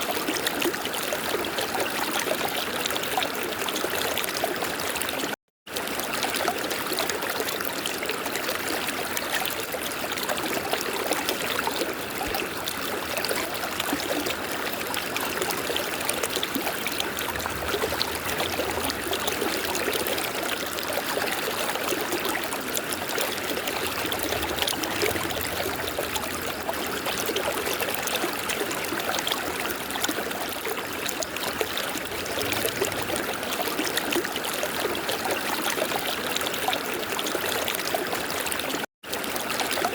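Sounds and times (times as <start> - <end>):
river water rushing: 15.2 - 21.7, 22.4 - 29.3.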